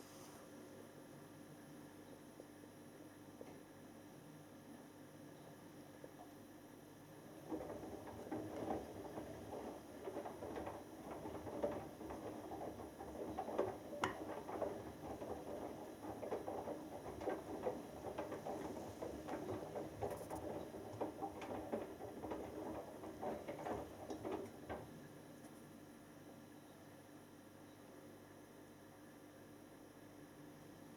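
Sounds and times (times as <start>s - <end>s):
washing machine drum sloshing: 7.2s - 25.4s.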